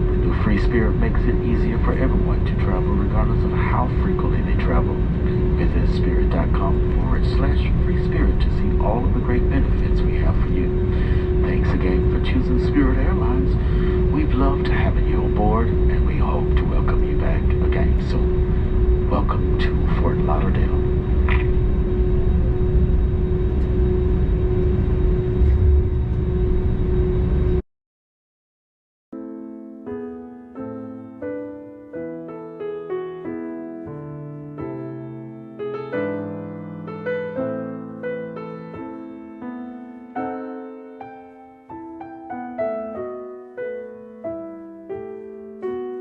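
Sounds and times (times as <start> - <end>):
aircraft cabin low rumble: 0.0 - 27.6
constant hum: 0.0 - 27.6
soft piano chords: 0.0 - 27.6, 29.2 - 46.0.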